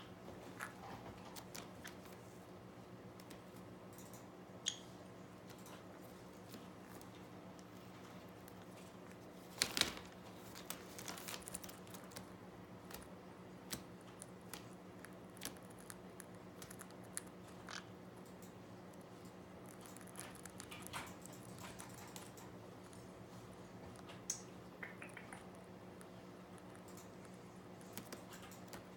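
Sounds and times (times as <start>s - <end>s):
faint steady hum: 0.0s - 28.9s
parrot crunching chips: 6.0s - 28.9s
beak clicks: 24.1s - 25.7s.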